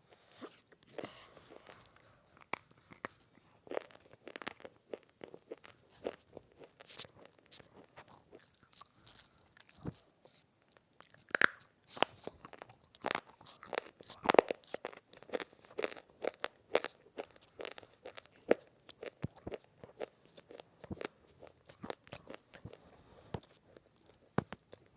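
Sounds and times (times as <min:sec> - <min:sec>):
crunching and chewing clay: 0:00.1 - 0:24.9.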